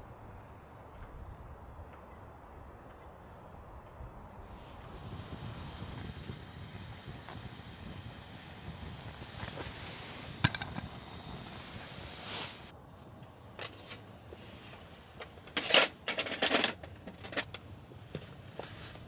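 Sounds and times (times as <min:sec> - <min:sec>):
steady hiss: 0:04.4 - 0:19.0
light clicks and clatters: 0:13.2 - 0:19.0.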